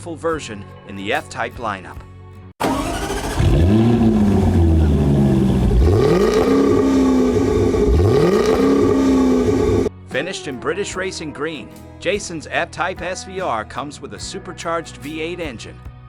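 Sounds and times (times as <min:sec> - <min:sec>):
car engine revving hard: 0:02.6 - 0:09.9.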